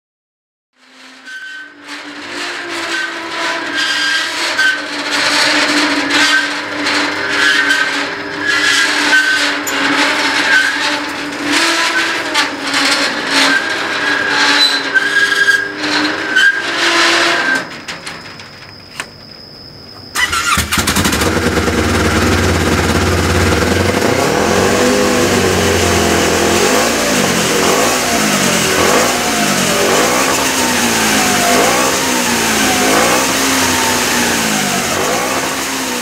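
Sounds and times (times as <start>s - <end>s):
engine revving: 20.2s - 36.0s.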